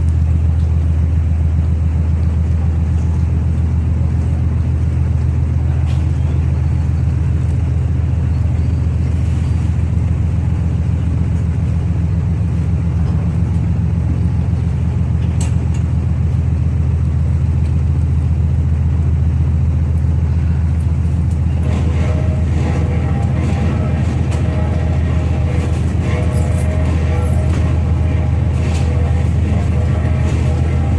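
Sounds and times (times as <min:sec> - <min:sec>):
diesel engines droning: 0:00.0 - 0:30.9
higher tones: 0:21.4 - 0:30.9.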